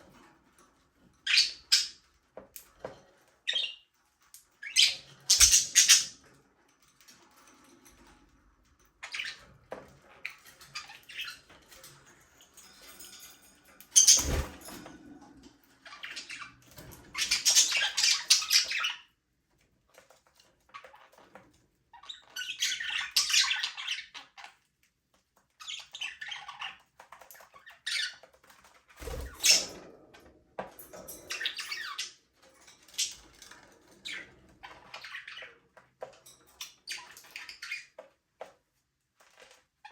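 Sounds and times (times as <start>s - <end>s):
budgerigars chirping and squawking: 1.3s - 2.1s, 3.5s - 3.8s, 4.6s - 6.2s, 9.0s - 9.5s, 10.3s - 11.5s, 14.0s - 14.8s, 15.8s - 19.1s, 22.0s - 24.6s, 25.6s - 28.3s, 29.0s - 29.8s, 31.3s - 32.2s, 32.8s - 35.7s, 36.5s - 38.0s.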